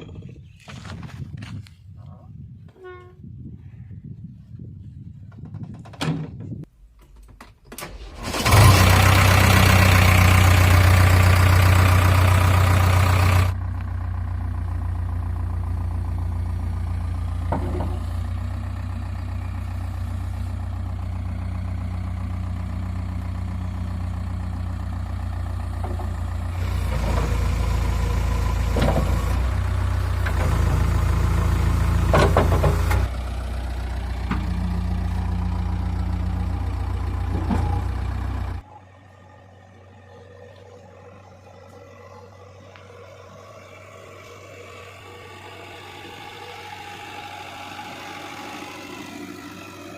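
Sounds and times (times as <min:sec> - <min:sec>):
engine starting and idling: 0:07.0 - 0:38.7, 0:39.8 - 0:49.9.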